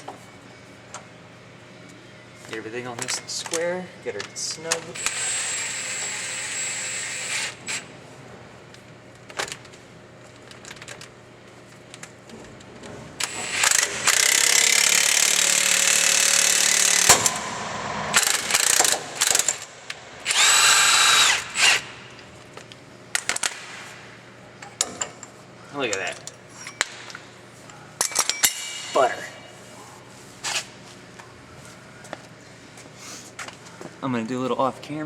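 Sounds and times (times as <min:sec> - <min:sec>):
impact gun running: 0:13.6 - 0:22.0
metal clanks: 0:16.2 - 0:20.4.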